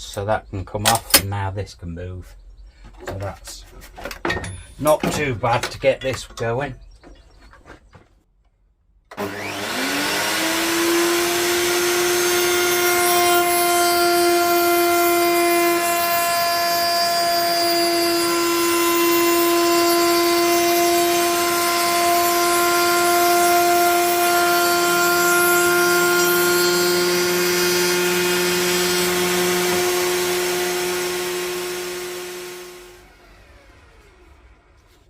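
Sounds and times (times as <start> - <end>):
electric router running: 9.1 - 34.8.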